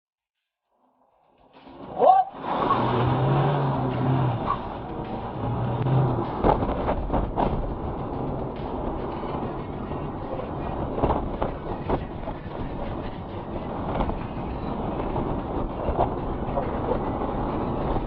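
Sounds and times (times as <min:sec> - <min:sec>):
vehicle rumbling over rough road: 0:01.4 - 0:18.0
rattles: 0:04.6 - 0:18.0
sharp knocks: 0:06.3 - 0:07.8.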